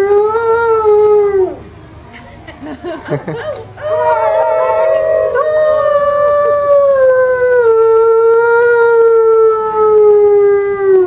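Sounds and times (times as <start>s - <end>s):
wolf howling: 3.8s - 11.0s.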